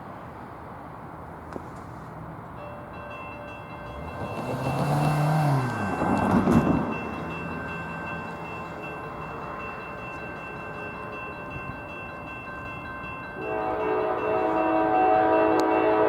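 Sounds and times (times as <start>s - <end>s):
vehicle passing by: 3.8s - 8.8s
steady ringing tones: 5.5s - 14.5s.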